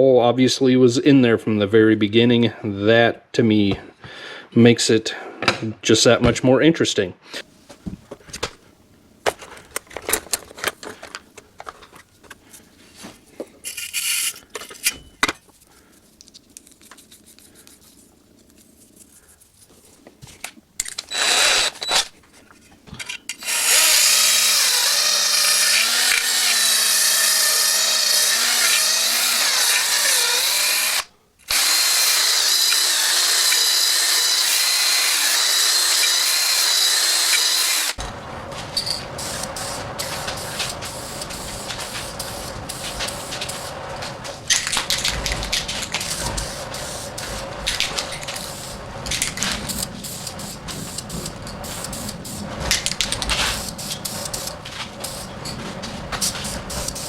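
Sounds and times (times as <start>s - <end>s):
small metal parts clicking: 13.6s - 15.4s
handheld power tool running: 20.9s - 22.1s, 23.4s - 38.0s.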